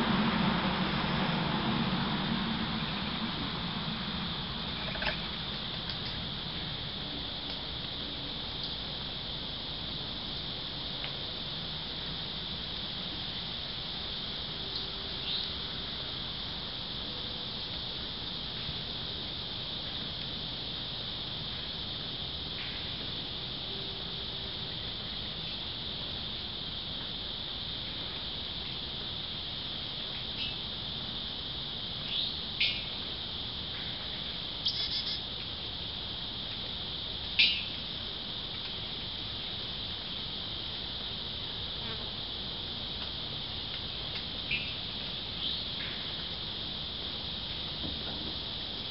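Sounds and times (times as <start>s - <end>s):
insects trilling: 0.0s - 48.9s
bird chirps: 34.6s - 35.2s.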